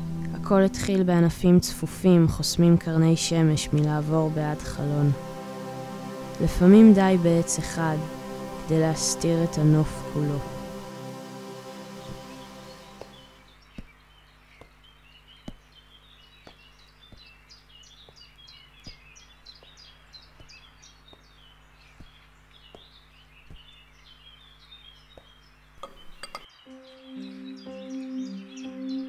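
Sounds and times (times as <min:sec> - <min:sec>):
sustained music tones: 0:00.0 - 0:13.5, 0:26.6 - 0:29.0
low steady hum: 0:00.0 - 0:13.6
small birds chirping: 0:00.5 - 0:29.0.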